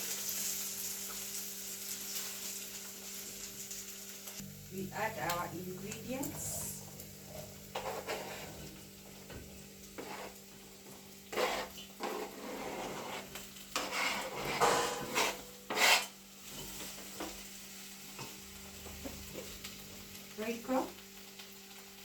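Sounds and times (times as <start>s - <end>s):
vegetables added to stew: 5.2s - 22.0s
spoon scraping and stirring pot: 6.2s - 17.3s.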